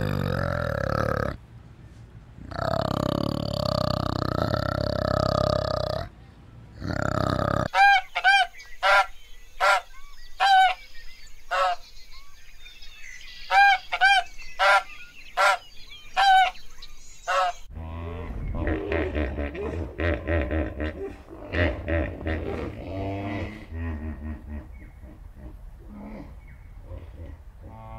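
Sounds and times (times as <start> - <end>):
geese honking: 7.7 - 10.9, 11.5 - 11.9, 13.4 - 16.6, 17.3 - 17.7.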